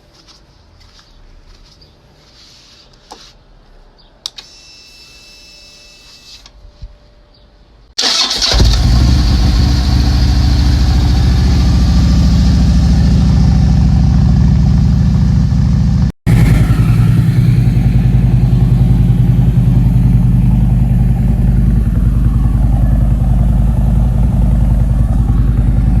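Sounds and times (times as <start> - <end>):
motorcycle engine starting and idling: 8.0 - 26.0.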